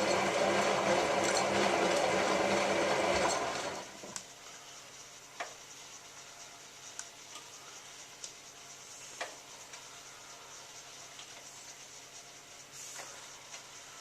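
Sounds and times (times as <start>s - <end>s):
washing machine water swishing: 0.0s - 4.1s.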